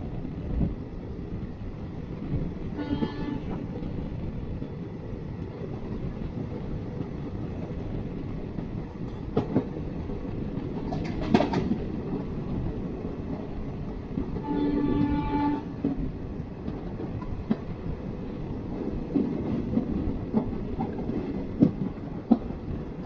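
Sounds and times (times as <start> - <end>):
train wheels rumbling: 0.0 - 23.0
wheels clacking over rail joints: 8.5 - 12.7.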